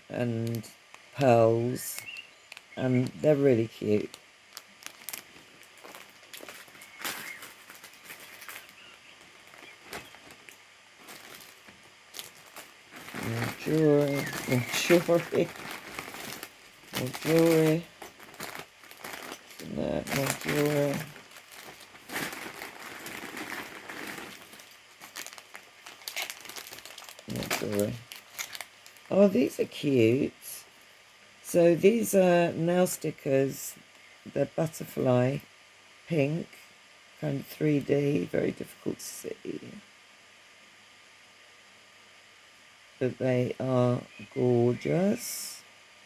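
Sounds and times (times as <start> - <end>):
plastic packets crinkling: 0.3 - 29.3.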